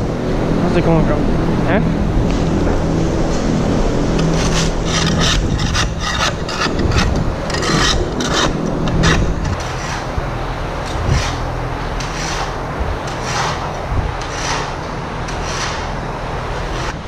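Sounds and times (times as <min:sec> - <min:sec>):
steady low hum: 0:00.0 - 0:17.0
shovel scraping concrete: 0:04.1 - 0:10.2, 0:10.8 - 0:16.0.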